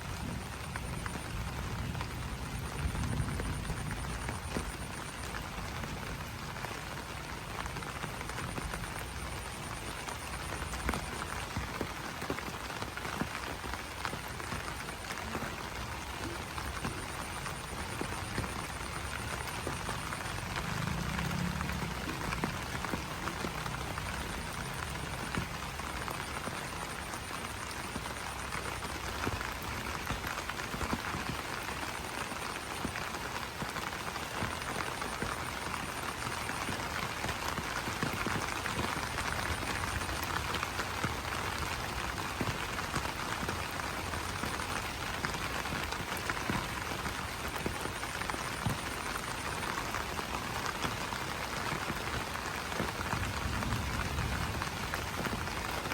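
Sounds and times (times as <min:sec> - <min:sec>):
rain pattering on leaves: 0:00.0 - 0:55.9
high pulsing frog or insect call: 0:00.4 - 0:05.7, 0:14.0 - 0:29.9.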